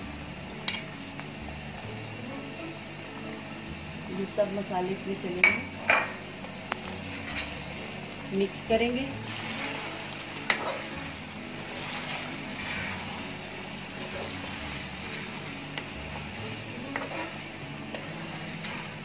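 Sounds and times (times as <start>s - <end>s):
meat sizzling in oil: 5.3s - 19.0s
metal spatula scraping a pan: 9.2s - 11.0s, 11.6s - 13.3s, 16.8s - 19.0s.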